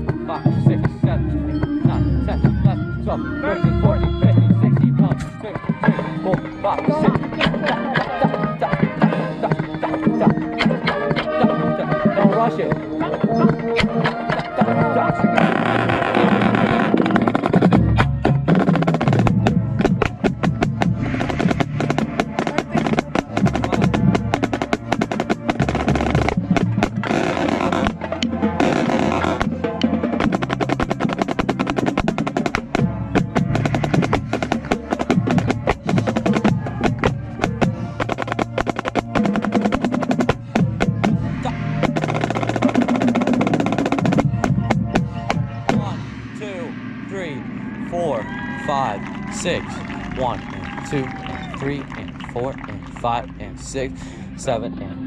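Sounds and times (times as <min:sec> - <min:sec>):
marching band playing: 0:00.0 - 0:55.0
wind instruments sustained notes: 0:00.0 - 0:55.0
sharp snare drum strokes: 0:15.4 - 0:48.0.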